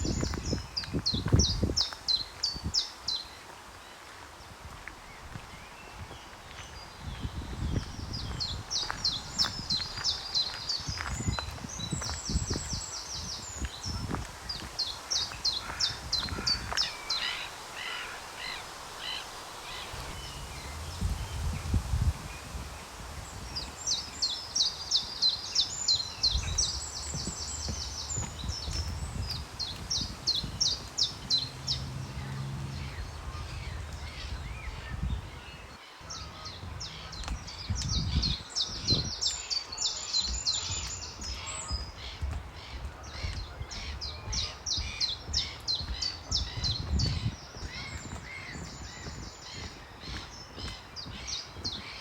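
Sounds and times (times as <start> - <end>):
songbirds chirping: 0.0 - 52.0
low uneven rumble: 19.6 - 24.1, 26.0 - 38.4.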